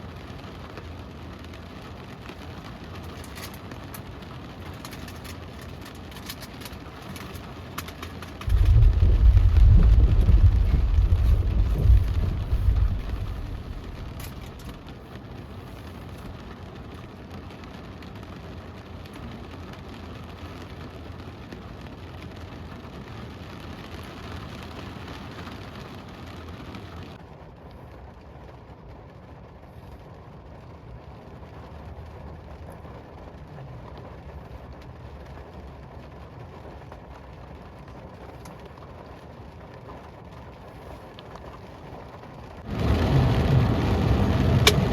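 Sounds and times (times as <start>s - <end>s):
rain hissing on a car: 0.0s - 44.9s
deep rumble: 8.4s - 15.1s, 42.4s - 44.9s.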